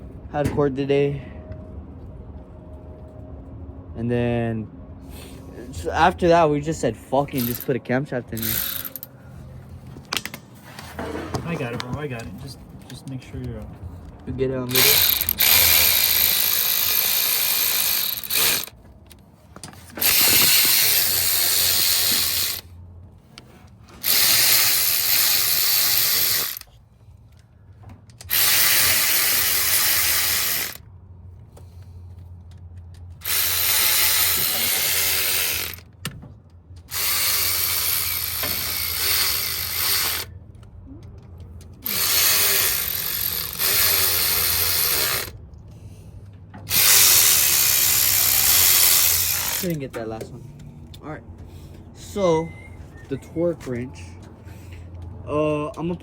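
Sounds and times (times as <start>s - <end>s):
cordless ratchet spinning: 7.3s - 7.7s, 8.4s - 9.2s, 14.7s - 18.8s, 20.0s - 22.7s, 24.0s - 26.7s, 28.2s - 30.8s, 33.2s - 35.9s, 36.9s - 40.3s, 41.8s - 45.4s, 46.7s - 49.8s.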